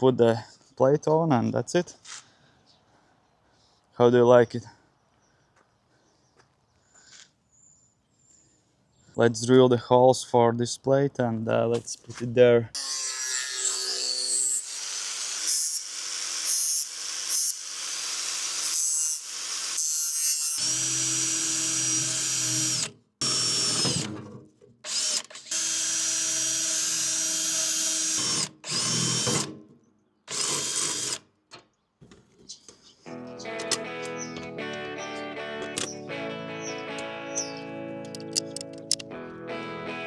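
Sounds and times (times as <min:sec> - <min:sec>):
power drill drilling: 0:13.9 - 0:19.9, 0:20.6 - 0:24.1, 0:24.9 - 0:29.5, 0:30.3 - 0:31.2.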